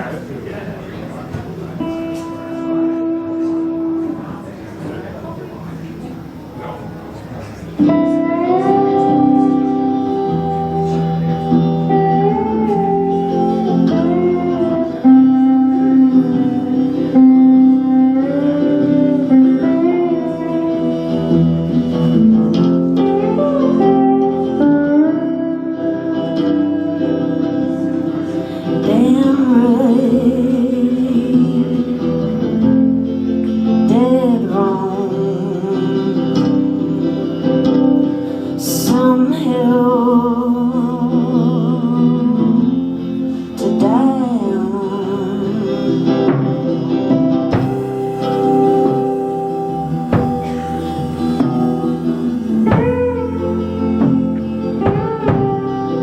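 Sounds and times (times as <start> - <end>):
guitar playing: 0.0 - 56.0
person singing: 7.8 - 56.0.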